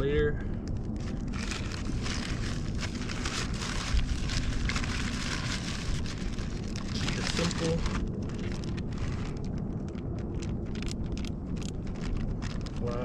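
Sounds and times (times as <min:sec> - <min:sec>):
steady low rumble: 0:00.0 - 0:13.0
crunching of eating crusty bread: 0:00.6 - 0:13.0.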